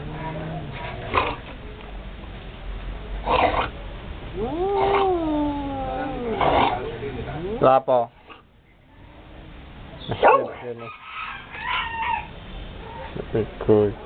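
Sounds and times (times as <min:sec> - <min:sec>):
cat yowling: 0:04.3 - 0:06.8.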